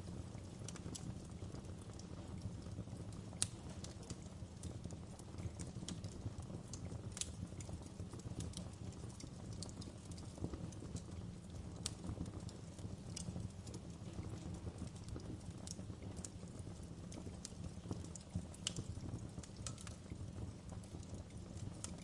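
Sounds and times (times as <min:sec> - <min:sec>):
low rumble of flames: 0:00.0 - 0:22.0
wood fire crackling: 0:00.0 - 0:22.0.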